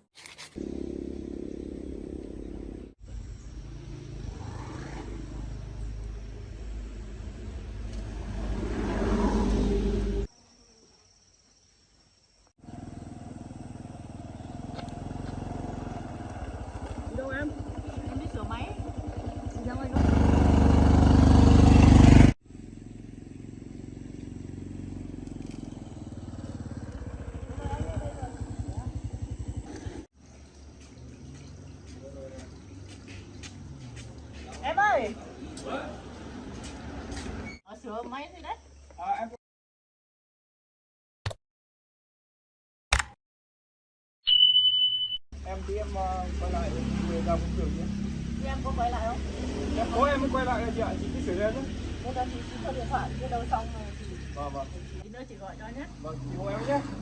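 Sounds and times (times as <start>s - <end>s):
small engine running: 0.2s - 2.9s, 12.6s - 30.1s
quieter engine running steadily: 0.6s - 10.3s, 12.6s - 37.4s, 45.4s - 57.0s.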